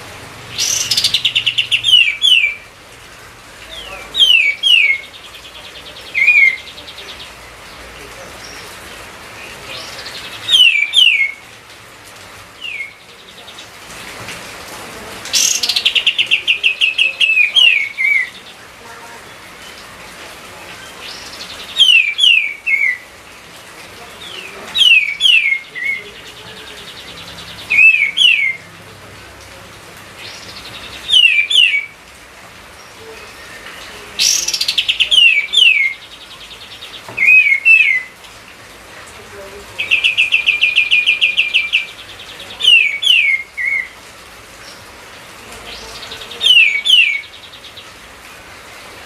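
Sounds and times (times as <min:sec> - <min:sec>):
songbird whistling: 0:10.4 - 0:11.4, 0:12.6 - 0:13.0, 0:27.7 - 0:28.6, 0:31.1 - 0:31.9, 0:37.2 - 0:38.1.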